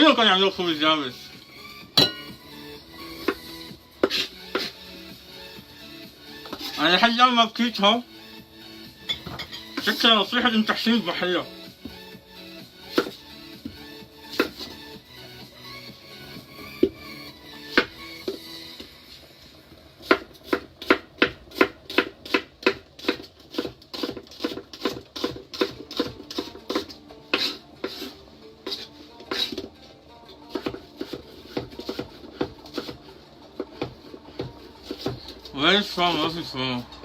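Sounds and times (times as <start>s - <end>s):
knife chopping onion on board: 3.2s - 4.8s, 12.9s - 14.8s, 17.7s - 17.9s, 20.0s - 29.7s, 30.5s - 35.5s.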